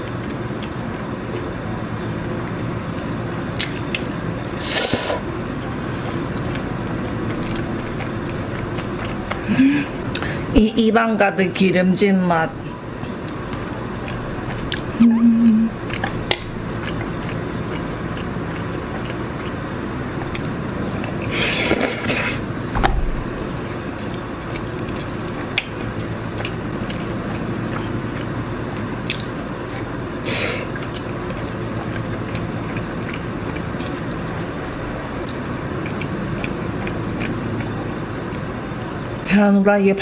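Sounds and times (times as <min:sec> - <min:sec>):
person chewing noodles: 0:00.0 - 0:10.5, 0:12.6 - 0:22.7, 0:23.3 - 0:39.2
short low hum: 0:12.5 - 0:18.5, 0:19.8 - 0:29.0.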